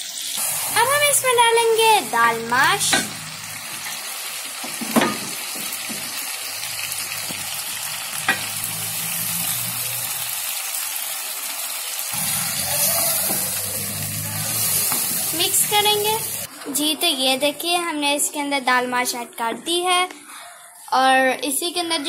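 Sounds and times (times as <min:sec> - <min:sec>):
food sizzling in a frying pan: 0:00.0 - 0:16.5.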